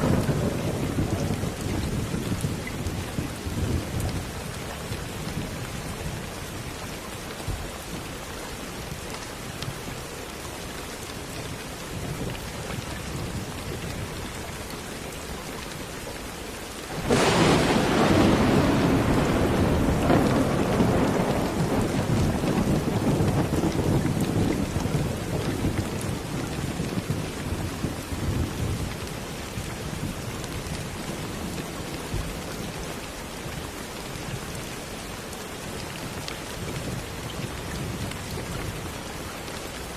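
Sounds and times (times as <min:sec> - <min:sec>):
thunder clap and rumble: 0:00.0 - 0:06.2, 0:16.9 - 0:32.8
steady rain: 0:00.0 - 0:39.9.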